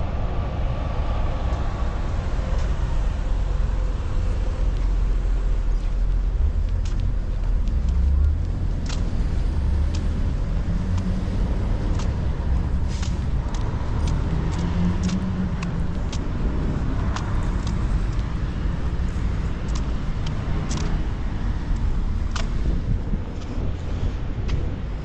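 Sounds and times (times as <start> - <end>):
motor vehicles rumbling: 0.0 - 25.0
light ticks and taps: 6.6 - 16.3, 17.0 - 18.4, 19.1 - 21.0, 21.8 - 22.6.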